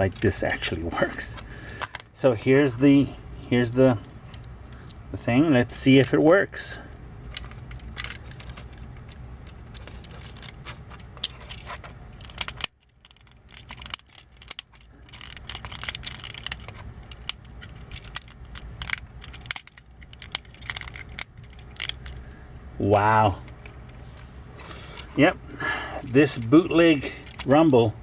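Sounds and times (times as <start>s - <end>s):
plastic toy clicks and rattles: 7.3s - 22.2s, 27.2s - 27.6s.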